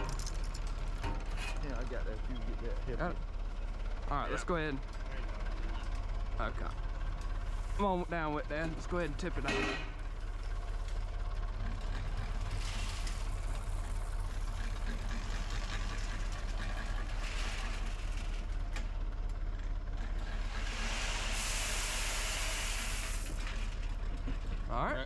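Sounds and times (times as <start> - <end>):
diesel engine running: 0.0 - 25.0
corn pouring out: 20.5 - 23.7.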